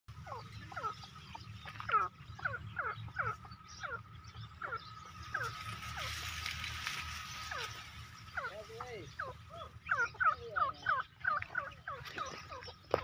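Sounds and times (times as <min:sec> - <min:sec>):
bird calls sliding downward: 0:04.6 - 0:10.0.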